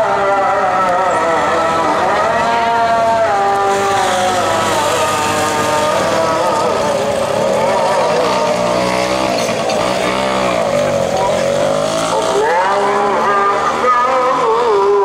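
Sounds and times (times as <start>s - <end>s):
man singing call to prayer over loudspeaker: 0.0s - 15.0s.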